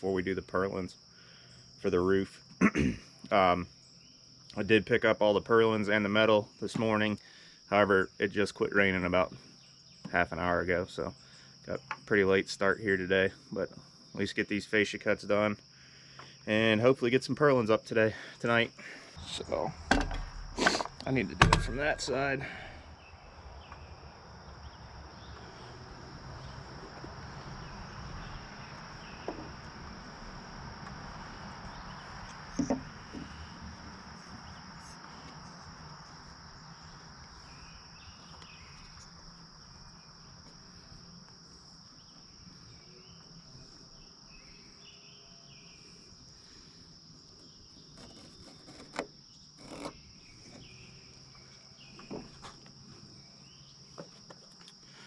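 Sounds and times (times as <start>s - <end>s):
faint background noise: 0.0s - 55.0s
insects chirring: 0.0s - 55.0s
short knocks: 19.8s - 22.5s.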